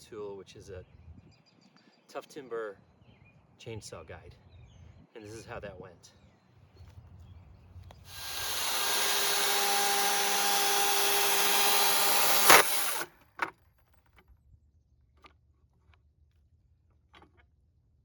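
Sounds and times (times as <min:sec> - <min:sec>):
chainsaw whining: 0:08.1 - 0:13.1.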